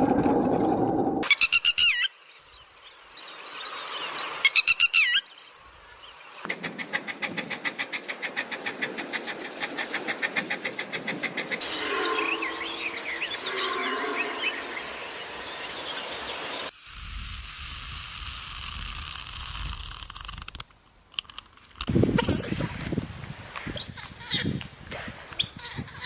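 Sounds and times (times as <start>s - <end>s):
bird trills: 11.6s - 16.5s
soft bird chirps: 11.6s - 16.7s.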